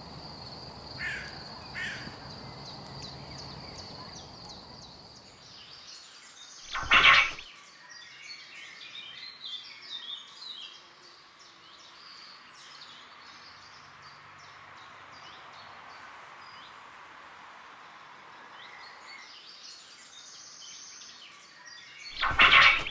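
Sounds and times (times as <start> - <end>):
small birds chirping: 0.0 - 5.8, 22.2 - 22.9.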